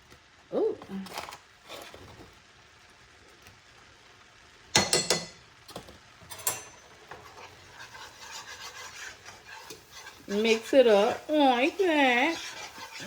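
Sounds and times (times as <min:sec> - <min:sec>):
utensils clattering on a skillet: 0:04.8 - 0:13.0
faint scraping while stirring: 0:06.6 - 0:13.0.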